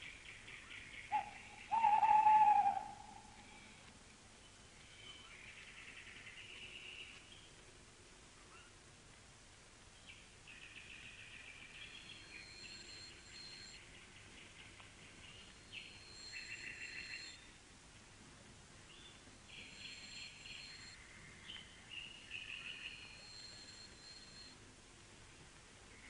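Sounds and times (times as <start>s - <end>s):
faint trilling bird song: 0.0s - 7.6s, 8.4s - 8.8s, 10.0s - 17.6s, 18.9s - 24.6s
thin steady high tone: 11.8s - 13.9s, 15.1s - 17.6s, 19.5s - 21.0s, 22.2s - 24.6s.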